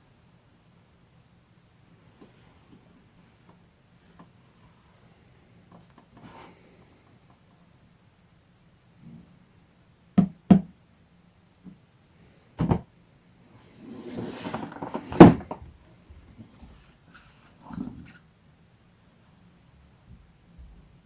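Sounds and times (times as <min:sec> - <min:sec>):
rustling and scraping: 0:13.6 - 0:18.2.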